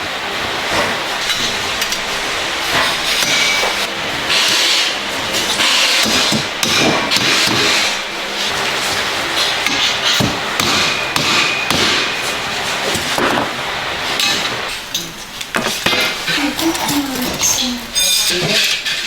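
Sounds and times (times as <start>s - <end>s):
noisy clatter: 0.0s - 19.0s
hammering on metal: 5.6s - 7.9s, 9.4s - 12.4s.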